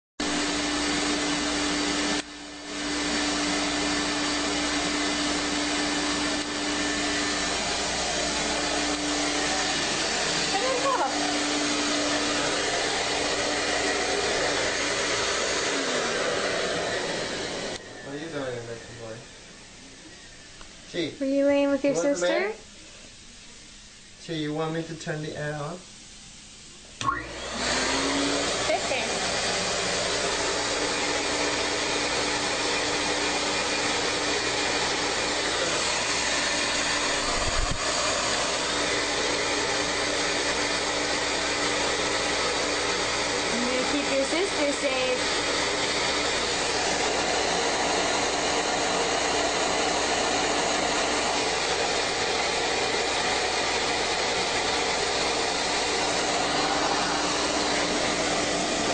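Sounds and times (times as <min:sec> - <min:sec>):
vacuum cleaner whir and hum: 0:00.2 - 0:25.8, 0:26.7 - 0:58.9
appliance motor whooshing: 0:36.7 - 0:38.6.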